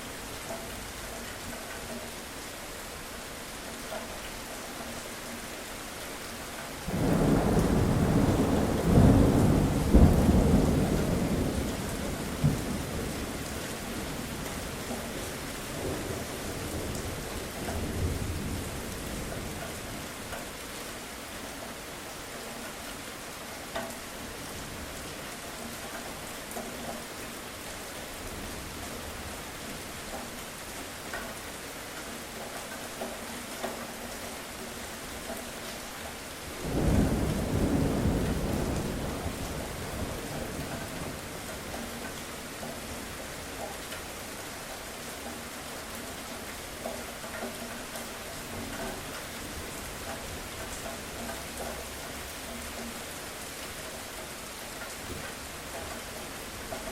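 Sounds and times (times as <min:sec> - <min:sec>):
steady rain: 0:00.0 - 0:56.9
thunder rumbling: 0:06.9 - 0:13.4, 0:36.6 - 0:41.5.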